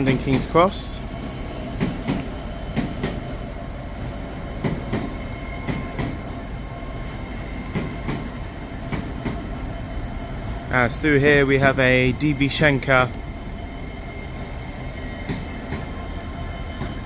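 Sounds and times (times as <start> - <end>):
train rumbling slowly: 0.0 - 17.0
train wheels clicking over rail joints: 1.6 - 3.4, 4.6 - 6.4, 7.6 - 9.5, 15.2 - 17.0.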